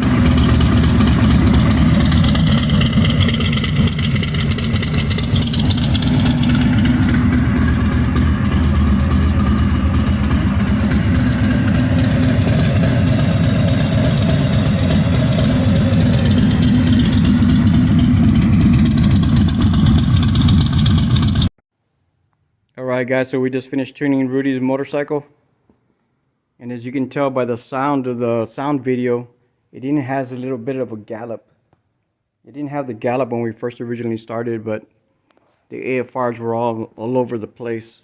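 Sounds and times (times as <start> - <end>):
motorcycle engine idling: 0.0 - 21.5.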